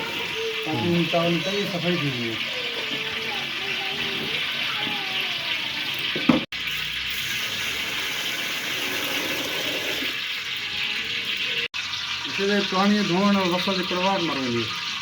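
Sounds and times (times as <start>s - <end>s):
water running into a pot: 0.0s - 15.0s.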